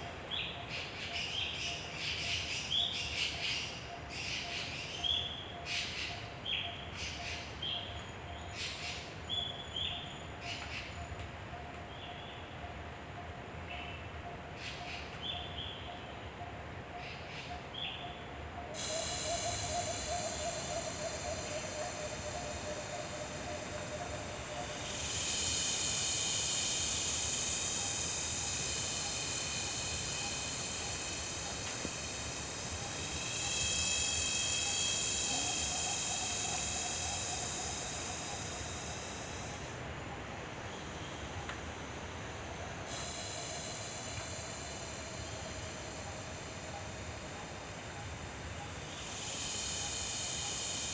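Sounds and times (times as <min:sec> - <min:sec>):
high insect drone: 0:00.0 - 0:50.9
low warbling call: 0:32.8 - 0:39.6.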